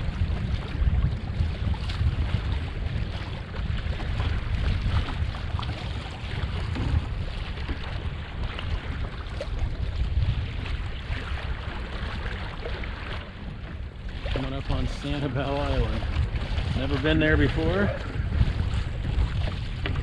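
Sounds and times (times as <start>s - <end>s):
water lapping against hull: 0.0s - 20.0s
wind buffeting microphone: 0.0s - 20.0s.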